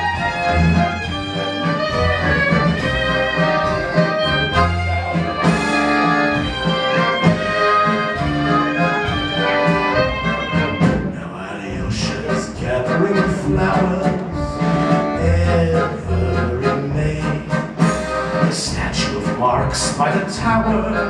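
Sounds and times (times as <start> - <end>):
horn melody: 0.0 - 11.2
fiddle melody: 0.0 - 21.0
steady bass line: 0.0 - 21.0.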